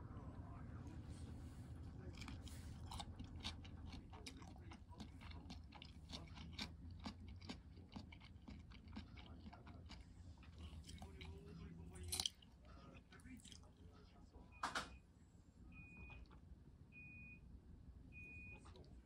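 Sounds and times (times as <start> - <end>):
person chewing crunchy food: 2.0 - 13.6.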